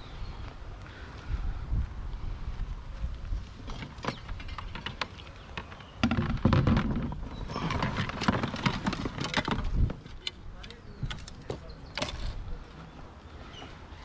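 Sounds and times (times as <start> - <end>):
wind rumble on microphone: 0.0 - 4.9, 6.0 - 11.4.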